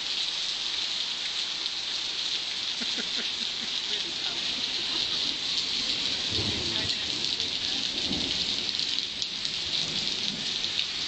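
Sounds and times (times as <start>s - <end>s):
heavy rain on street: 0.0s - 11.0s
thunder rumbling: 4.4s - 11.0s.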